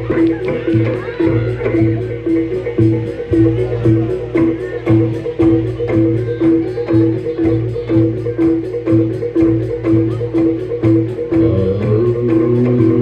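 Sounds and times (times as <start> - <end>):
low drum beat: 0.0 - 13.0
mallet-struck tuned tone: 0.0 - 13.0.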